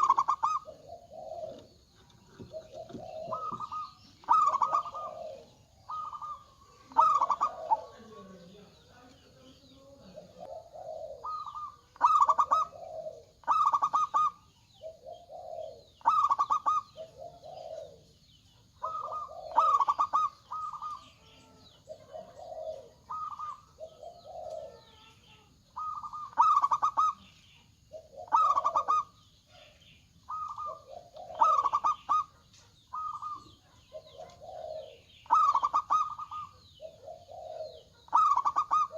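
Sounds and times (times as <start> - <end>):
doves cooing: 0.0 - 38.9
faint high chirping: 0.0 - 38.9.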